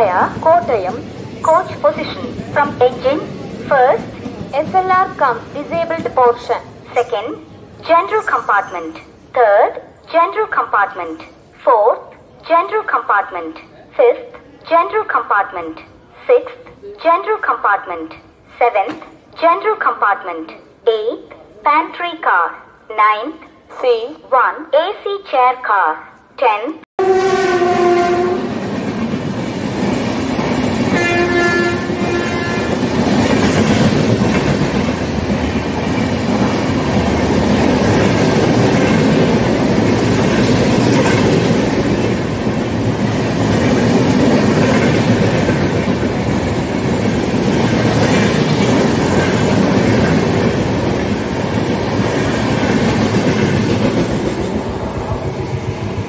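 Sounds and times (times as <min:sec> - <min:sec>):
train horn: 0:27.0 - 0:28.5, 0:30.9 - 0:32.8.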